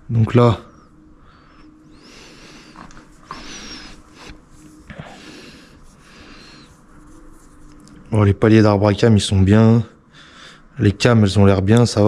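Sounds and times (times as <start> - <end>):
soft hissing: 0.4 - 9.3.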